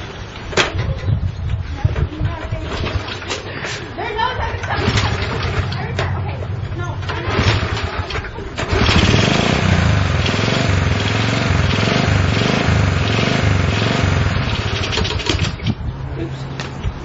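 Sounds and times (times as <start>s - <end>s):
motorcycle engine revving: 4.6s - 6.1s, 7.0s - 15.8s.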